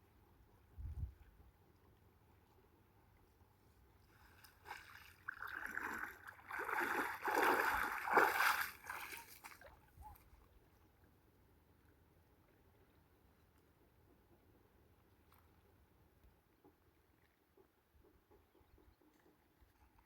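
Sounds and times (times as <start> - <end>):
water splashing and sloshing: 3.2 - 10.5.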